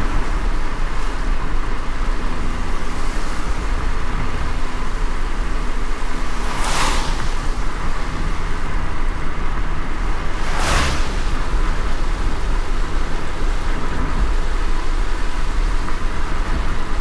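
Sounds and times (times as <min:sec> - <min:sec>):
car road rumble: 0:00.0 - 0:17.0
rain and wet tyres hissing: 0:00.0 - 0:17.0
short swish: 0:06.0 - 0:08.6, 0:10.0 - 0:12.7.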